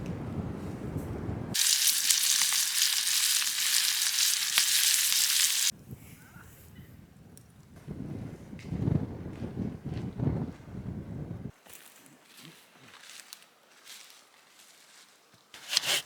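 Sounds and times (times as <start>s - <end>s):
wind on microphone: 0.0s - 1.6s, 5.5s - 11.5s
food sizzling in a pan: 1.6s - 5.7s.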